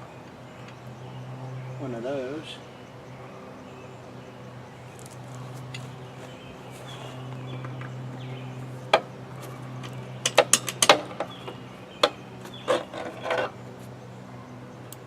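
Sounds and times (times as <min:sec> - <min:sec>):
steady low hum: 0:00.0 - 0:15.0
hand tools clicking and knocking: 0:08.9 - 0:13.6.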